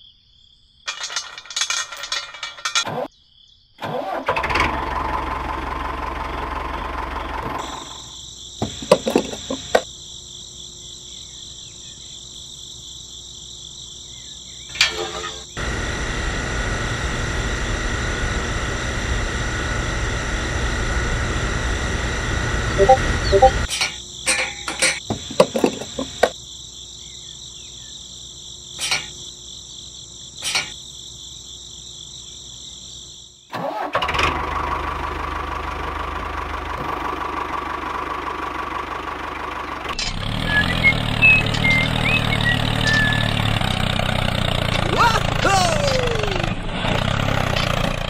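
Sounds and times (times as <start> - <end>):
tractor engine running: 3.8 - 10.0, 14.7 - 23.7, 24.6 - 26.4, 33.6 - 48.0
toy fuel pump whining: 8.6 - 9.9, 25.0 - 26.4, 44.6 - 46.6.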